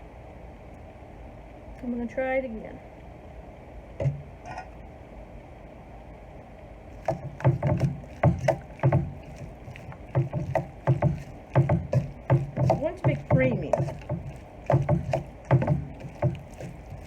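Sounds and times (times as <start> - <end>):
spoon stirring wet salad: 7.0 - 17.0.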